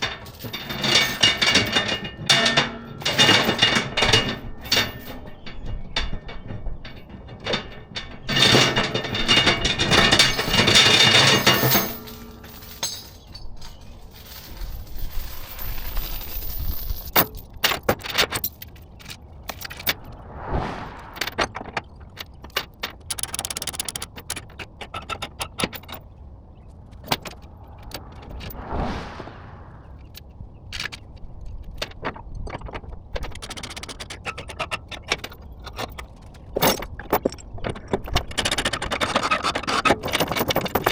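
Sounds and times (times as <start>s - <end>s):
metal jangling and clinking: 7.6s - 18.8s
rush of noise: 19.9s - 21.8s, 27.3s - 30.2s.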